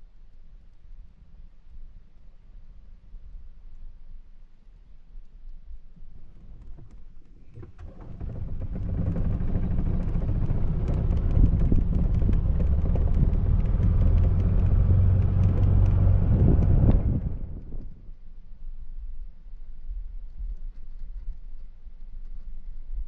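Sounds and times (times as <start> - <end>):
small rattles and clicks: 5.2 - 18.3, 20.2 - 23.0
motor vehicle engine rumbling: 6.4 - 18.1.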